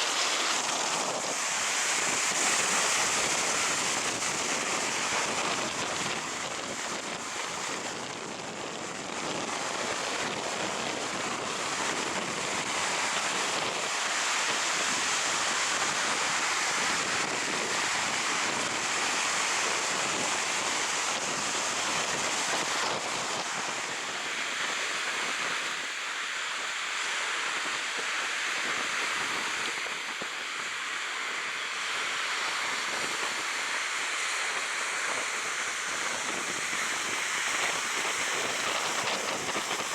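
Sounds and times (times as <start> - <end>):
sea surf breaking on beach: 0.0 - 39.9
wind on microphone: 0.0 - 39.9.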